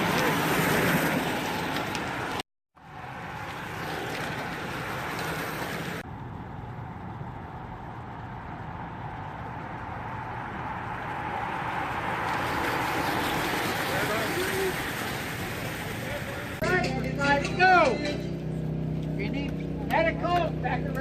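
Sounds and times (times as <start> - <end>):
racing bicycles passing: 0.0 - 16.6
tyre and drivetrain hum: 0.0 - 21.0.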